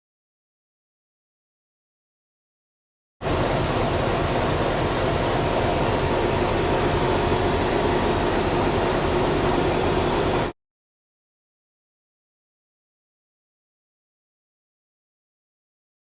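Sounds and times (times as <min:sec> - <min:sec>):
train running: 0:03.2 - 0:10.5.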